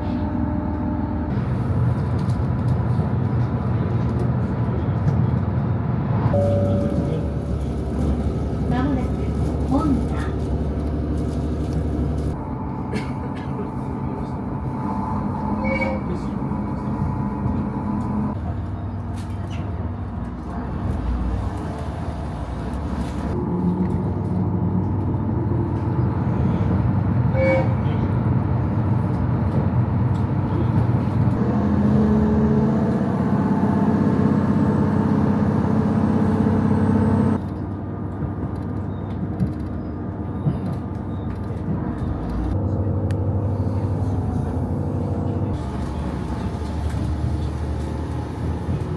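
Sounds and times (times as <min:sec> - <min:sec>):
railcar engine hum: 0:00.0 - 0:48.9.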